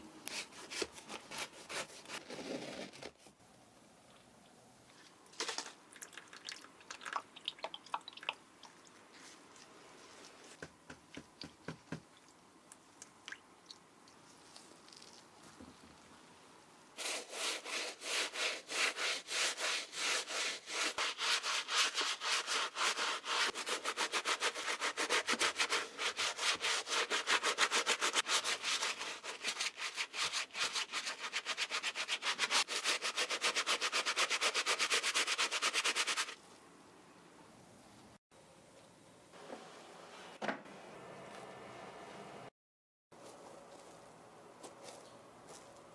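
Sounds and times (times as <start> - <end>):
rubbing strokes on a sneaker: 17.0 - 36.4.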